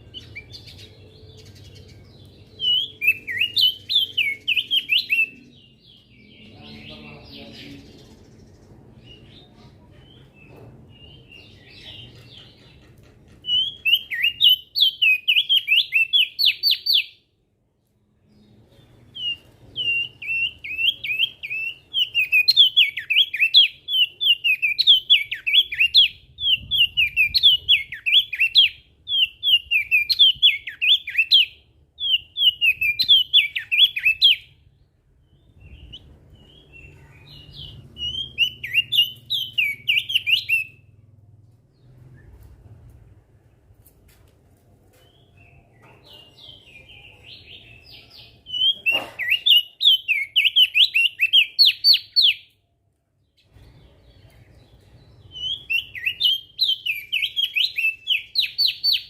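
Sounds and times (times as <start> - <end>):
bird singing high chattering whistles: 2.6 - 5.4, 19.2 - 34.5, 37.5 - 40.8, 48.5 - 52.5, 55.3 - 59.0.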